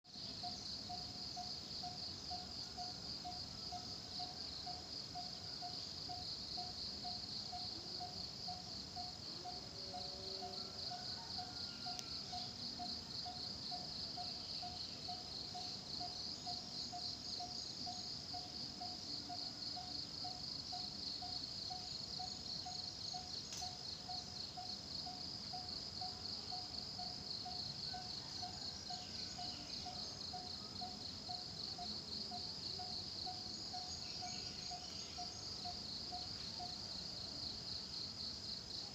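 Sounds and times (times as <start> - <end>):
insects trilling: 0.1 - 38.9.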